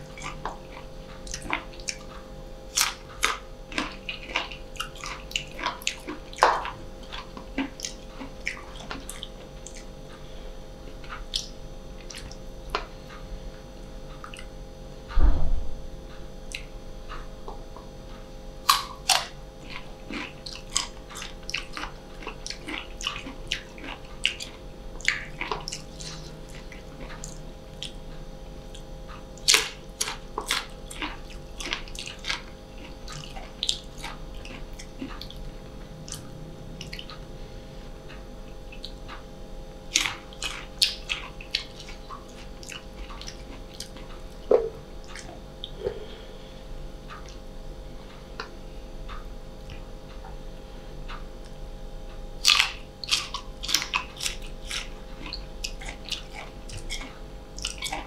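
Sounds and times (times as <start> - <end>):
wet mouth sounds: 1.2 - 9.9, 18.7 - 28.0, 52.4 - 58.0
crunching mango slices: 29.4 - 37.2, 52.4 - 58.0.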